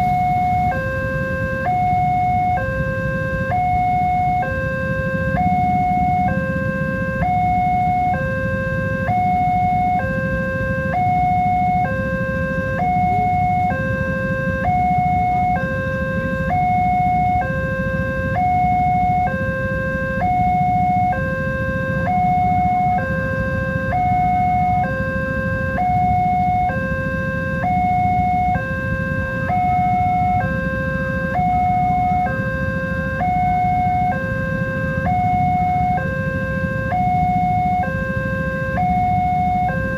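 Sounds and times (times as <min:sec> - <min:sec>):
two-tone crossing alarm: 0:00.0 - 0:39.9.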